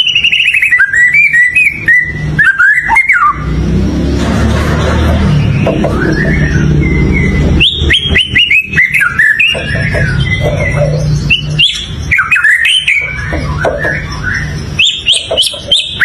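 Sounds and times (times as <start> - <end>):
bird singing whistled notes: 0.0 - 3.5, 5.4 - 16.0.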